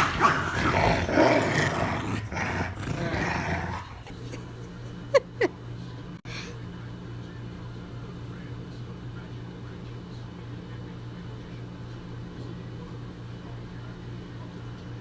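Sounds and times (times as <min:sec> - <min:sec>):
dog growling: 0:00.0 - 0:04.3.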